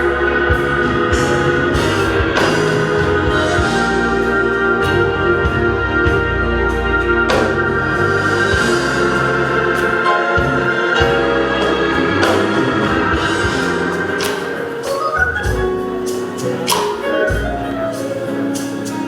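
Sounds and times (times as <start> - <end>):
organ music: 0.0 - 19.0.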